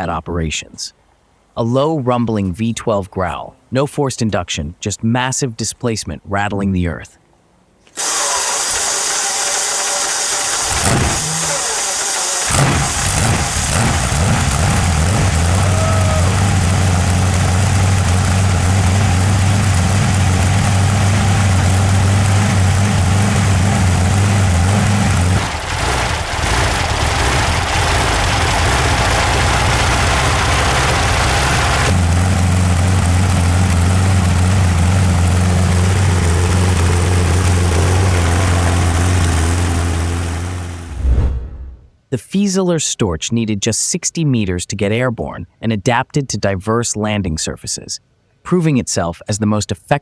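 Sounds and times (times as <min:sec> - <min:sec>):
tank engine running: 0:08.0 - 0:41.0.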